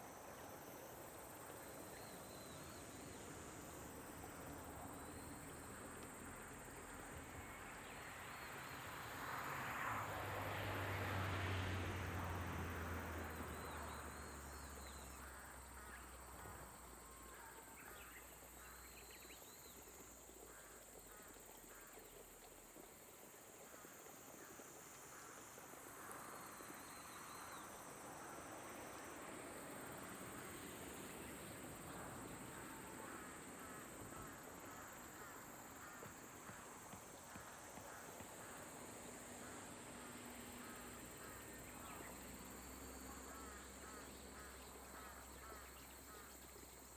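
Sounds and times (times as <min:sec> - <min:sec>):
soft rain hiss: 0:00.0 - 0:37.2
insects trilling: 0:12.0 - 0:46.9.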